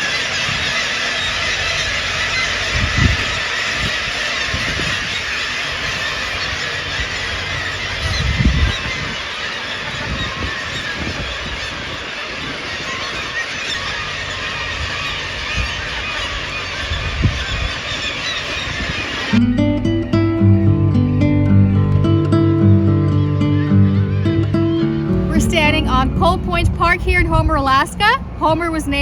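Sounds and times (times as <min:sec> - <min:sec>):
seagulls calling: 0:00.0 - 0:29.0
low thumps: 0:19.3 - 0:29.0.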